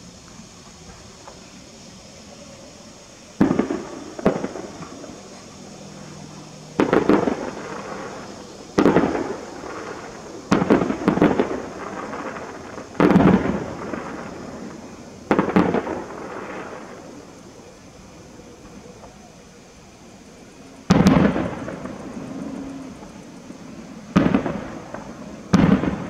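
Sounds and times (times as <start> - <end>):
distant firework booms: 3.4 - 17.2, 20.9 - 26.0.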